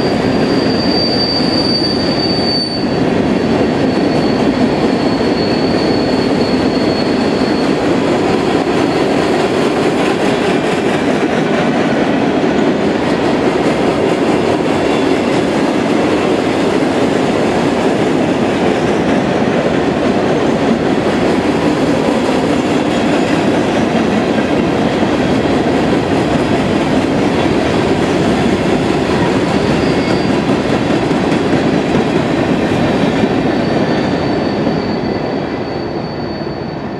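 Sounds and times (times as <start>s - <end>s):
high wheel squeal: 0.0s - 3.0s, 3.8s - 9.6s, 29.2s - 30.6s, 33.0s - 36.9s
rail cars rumbling and rattling: 0.0s - 36.9s.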